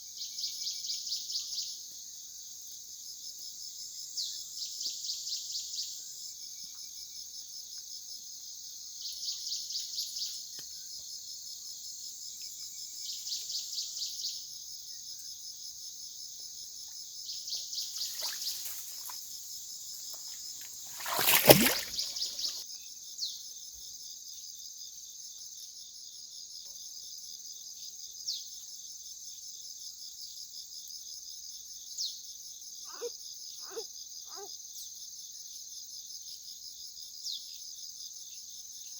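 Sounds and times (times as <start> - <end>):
insects trilling: 8.4 - 23.2, 31.7 - 36.3.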